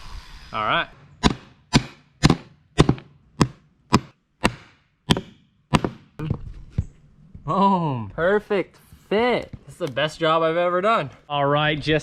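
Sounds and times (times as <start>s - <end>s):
sharp knocks on wood: 1.2s - 6.2s.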